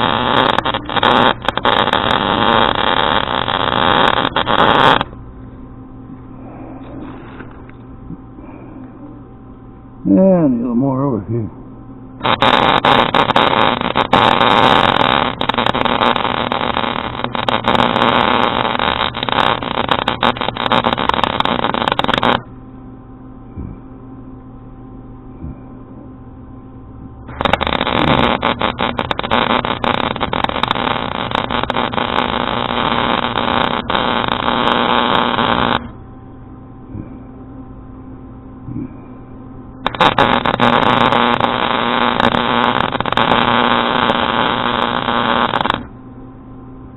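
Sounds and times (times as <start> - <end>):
welder arcing crackle: 0.0 - 5.2, 12.2 - 22.5, 27.2 - 36.0, 39.8 - 45.9
welding machine hum: 0.0 - 5.5, 12.2 - 22.6, 26.8 - 36.0, 39.8 - 46.0.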